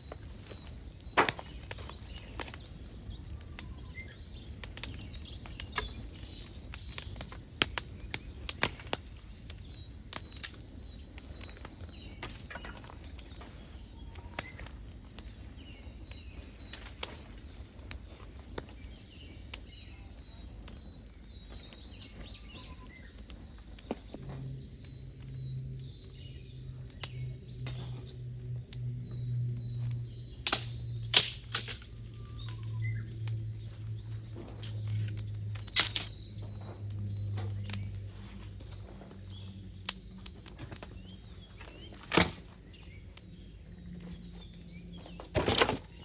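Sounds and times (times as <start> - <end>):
low outdoor rumble: 0.0 - 46.0
small birds chirping: 0.0 - 46.0
sharp snaps and clicks: 1.0 - 15.4, 21.6 - 34.0, 34.6 - 43.4.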